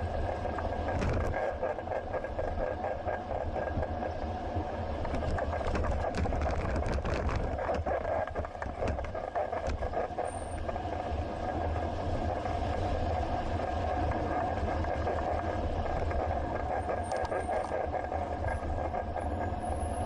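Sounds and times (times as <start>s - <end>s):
sharp rattles and clicks: 0.0s - 4.2s, 5.0s - 10.8s, 14.4s - 20.0s
bicycle rolling noise: 0.0s - 20.0s
wind rumble on microphone: 0.0s - 20.0s.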